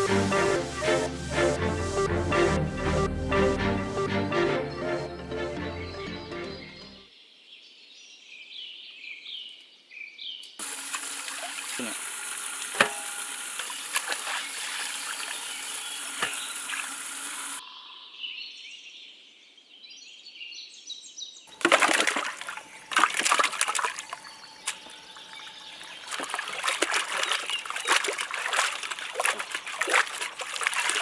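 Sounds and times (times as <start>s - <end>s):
water splashing and trickling: 10.6s - 17.6s, 21.5s - 31.0s.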